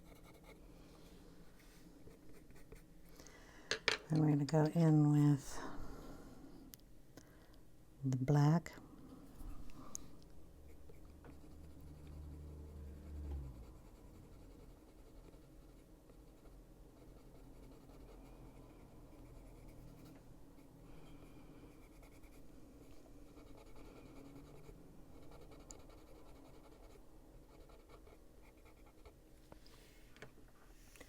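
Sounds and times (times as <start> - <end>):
pencil scratching on paper: 0.0 - 0.6, 10.7 - 20.7, 21.8 - 22.4, 23.2 - 29.2.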